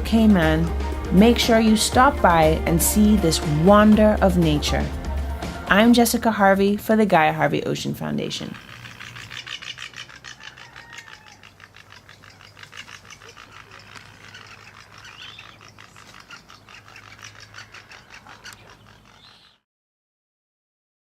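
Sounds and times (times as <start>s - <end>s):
pulsing insect chorus: 8.3s - 19.2s
short bird calls: 8.5s - 19.6s.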